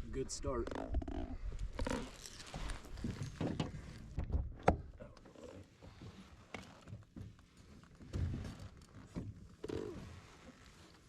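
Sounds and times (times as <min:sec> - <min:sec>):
handling knocks and rustles: 0:01.8 - 0:04.9.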